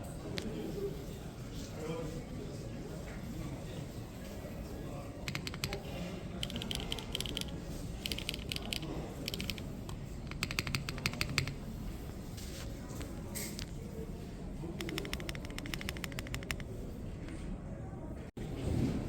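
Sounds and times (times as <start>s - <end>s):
low background noise: 0.0s - 19.0s
mechanical keyboard typing: 5.2s - 11.6s, 14.8s - 16.8s.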